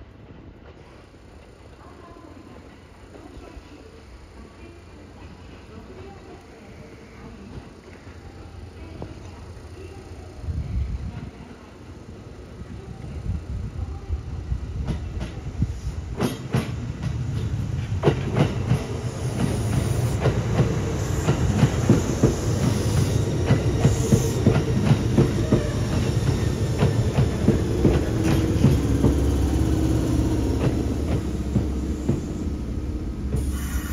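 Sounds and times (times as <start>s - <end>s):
low train rumble: 0.0s - 33.9s
steady train hum: 0.0s - 33.9s
train wheels clacking over joints: 14.8s - 33.7s.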